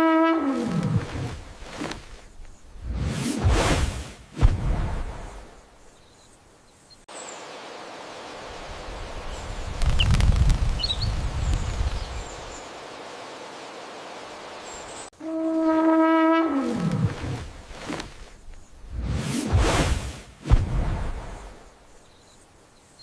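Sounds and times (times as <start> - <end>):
steady hiss: 1.5 - 15.1, 17.5 - 23.0
low rumble: 2.8 - 5.8
faint bird chirps: 10.8 - 12.7, 21.4 - 23.0.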